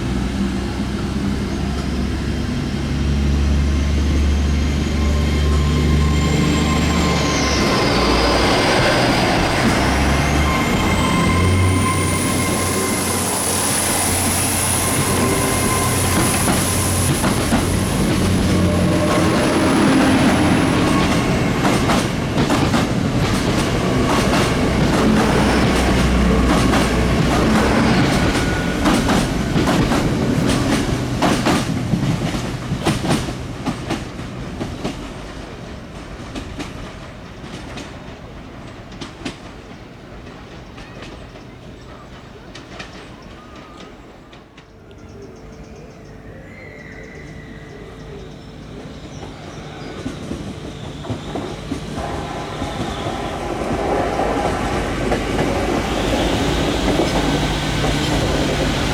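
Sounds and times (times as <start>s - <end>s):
train wheels clicking: 6.6s - 45.1s, 48.8s - 58.9s.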